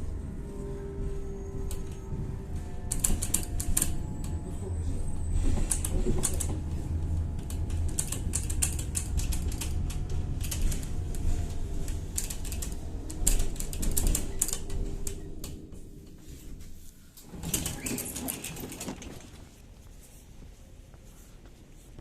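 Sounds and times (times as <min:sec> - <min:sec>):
tram running gear hum: 0:00.0 - 0:22.0
rapid clicking and rattling: 0:07.2 - 0:15.6, 0:17.2 - 0:19.5.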